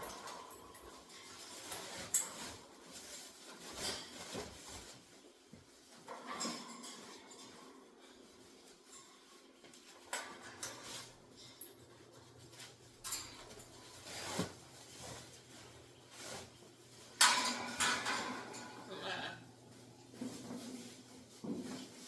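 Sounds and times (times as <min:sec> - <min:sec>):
knocks and clatter: 0:17.1 - 0:18.9.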